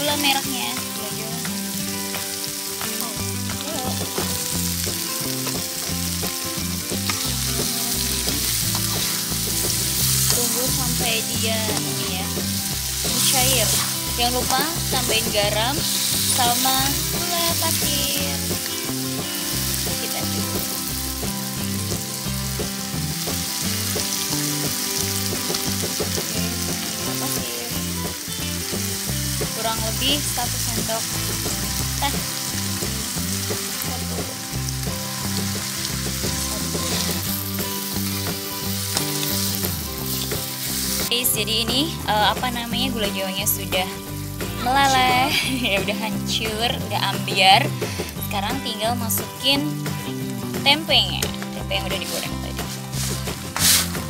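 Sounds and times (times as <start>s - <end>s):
background music: 0.0s - 54.0s
spices sizzling in oil: 0.0s - 54.0s
spatula stirring in wok: 7.0s - 10.8s, 52.2s - 54.0s
metal spatula scraping pan: 52.6s - 54.0s.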